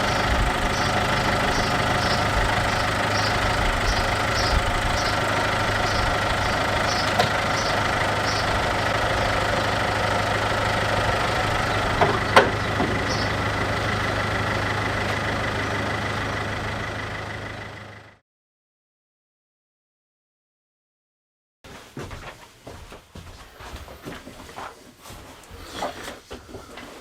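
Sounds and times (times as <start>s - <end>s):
diesel engine idling: 0.0s - 18.2s.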